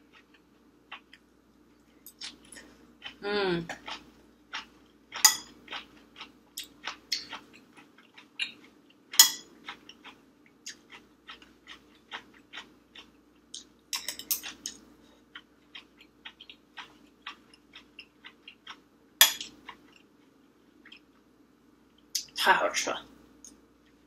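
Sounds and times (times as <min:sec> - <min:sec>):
wet chewing and mouth smacks: 0:02.1 - 0:09.0, 0:09.6 - 0:13.7, 0:14.4 - 0:18.8, 0:19.4 - 0:21.2.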